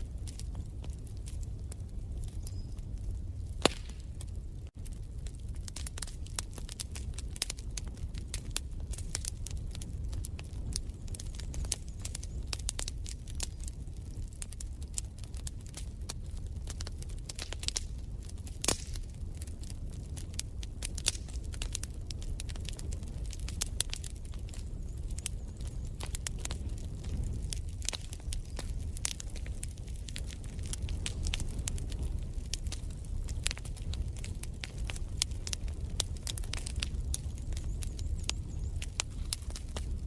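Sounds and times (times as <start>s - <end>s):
wood fire crackling and popping: 0.0s - 40.0s.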